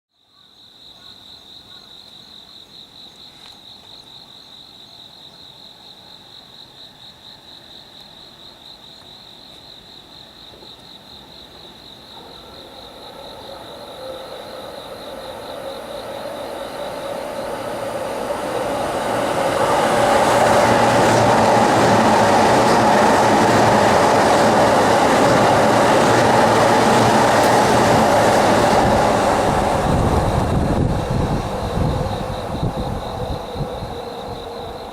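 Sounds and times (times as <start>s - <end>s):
electric train passing: 11.2s - 34.9s.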